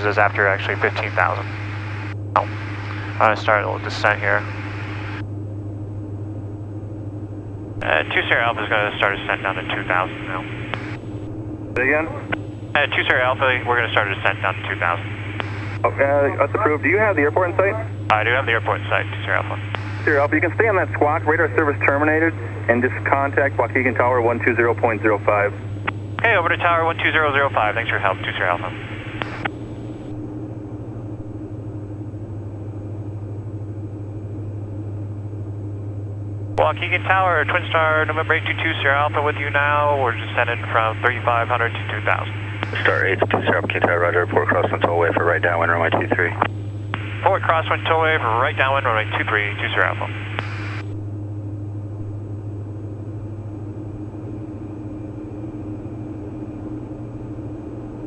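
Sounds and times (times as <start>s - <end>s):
radio click: 0.0s - 5.2s, 7.8s - 24.0s, 24.7s - 30.2s, 36.6s - 51.0s
aircraft engines and propellers droning: 0.0s - 58.0s.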